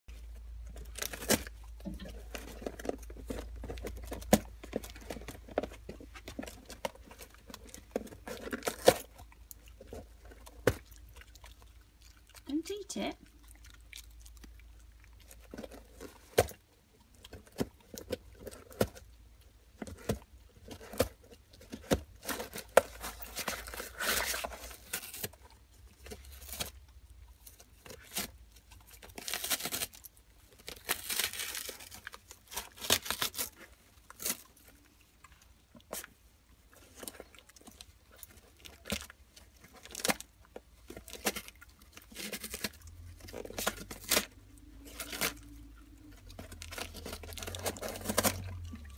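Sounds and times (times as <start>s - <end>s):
dog chewing cardboard: 0.2s - 12.5s, 13.3s - 48.9s
cardboard tearing rips: 30.6s - 34.6s, 41.1s - 45.5s, 46.4s - 48.6s.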